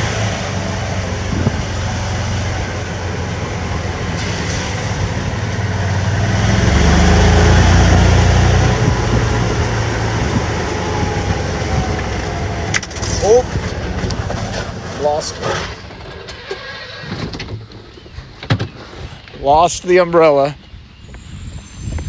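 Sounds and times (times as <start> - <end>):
rain and wind rushing: 0.0 - 15.2
golf cart motor hum: 0.0 - 17.5.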